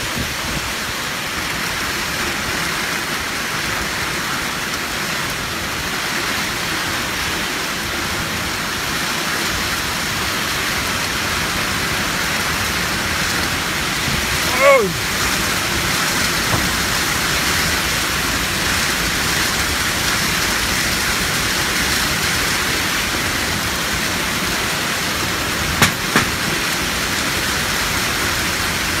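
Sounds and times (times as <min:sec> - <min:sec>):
heavy rain pouring: 0:00.0 - 0:29.0
sharp knocks: 0:16.5 - 0:16.9, 0:25.8 - 0:26.6.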